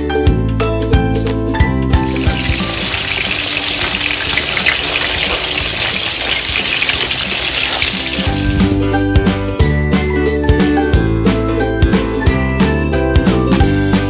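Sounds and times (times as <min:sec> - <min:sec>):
background music: 0:00.0 - 0:14.0
liver sizzling in a wok: 0:02.0 - 0:09.0.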